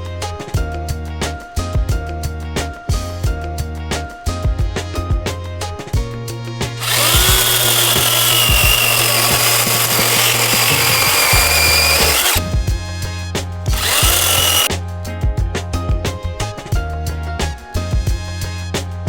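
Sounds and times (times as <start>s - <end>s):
chainsaw whining: 6.8s - 12.5s, 13.7s - 14.7s.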